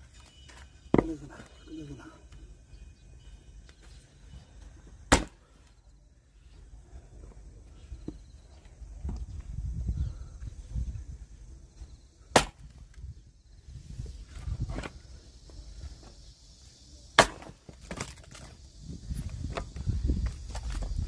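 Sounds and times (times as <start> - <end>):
axe strikes on logs: 5.1 - 5.4, 12.3 - 12.8, 17.2 - 18.1.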